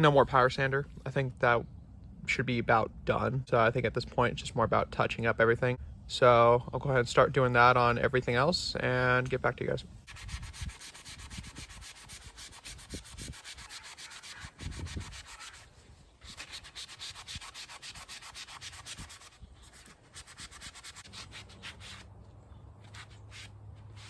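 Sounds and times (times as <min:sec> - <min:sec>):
sandpaper rasping on plastic: 0:10.1 - 0:22.1, 0:22.8 - 0:24.0.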